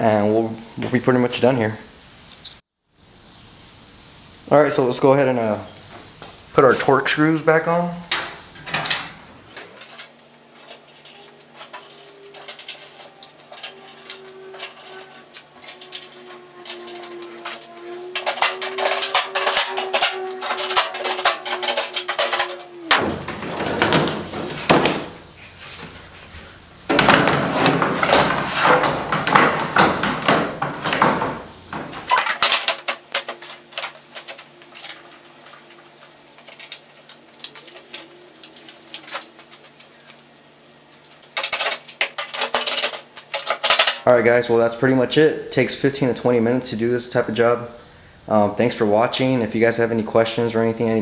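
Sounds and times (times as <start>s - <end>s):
loud scraping and rustling: 8.0s - 44.1s.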